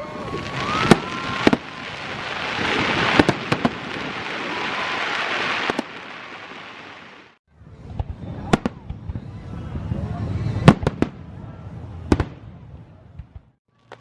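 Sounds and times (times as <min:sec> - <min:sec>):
dense crackling hiss: 0:00.0 - 0:07.4
fireworks booms: 0:00.0 - 0:09.4, 0:10.5 - 0:11.3, 0:12.0 - 0:13.5.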